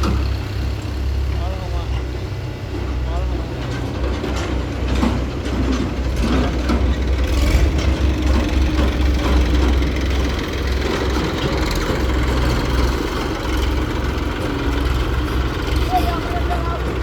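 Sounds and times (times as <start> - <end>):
heavy diesel engine running: 0.0 - 17.0
knocks and clatter: 3.6 - 15.8.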